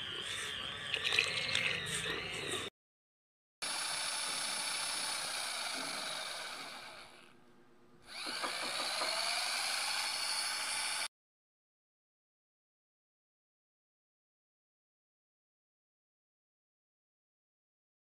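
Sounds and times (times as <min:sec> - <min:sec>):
small electric motor whining: 0:03.6 - 0:07.4, 0:08.0 - 0:11.1.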